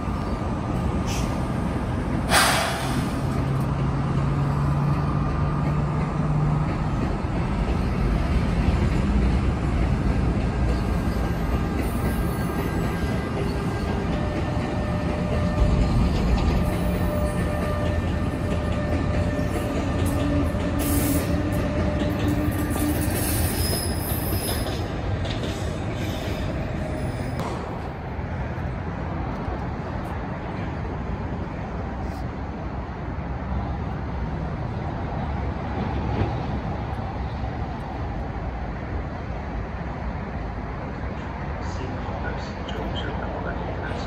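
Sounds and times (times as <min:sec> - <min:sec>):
train whining tones: 0:00.0 - 0:27.5
train wheels rumbling on rail: 0:00.0 - 0:44.0
high squeal: 0:22.5 - 0:24.8.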